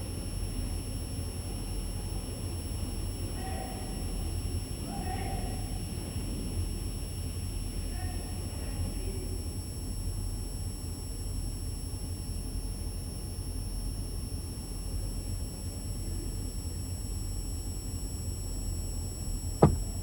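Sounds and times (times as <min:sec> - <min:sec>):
sharp knock: 0:19.6 - 0:20.0
truck engine idling: 0:19.6 - 0:20.0.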